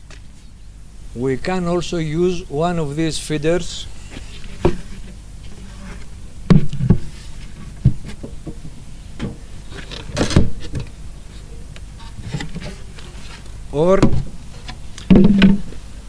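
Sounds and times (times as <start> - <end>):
wooden knocks and clunks: 14.0 - 14.3, 15.1 - 15.8.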